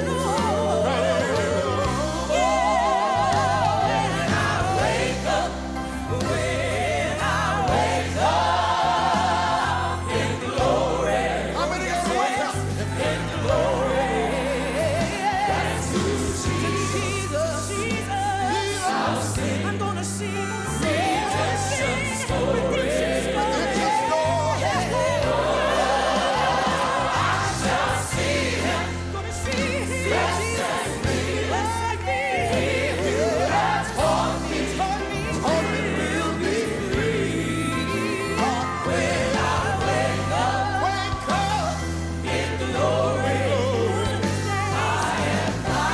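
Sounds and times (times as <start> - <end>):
bass line: 0.0 - 45.9
instrumental backing: 0.0 - 45.9
voices singing in harmony: 0.0 - 45.9.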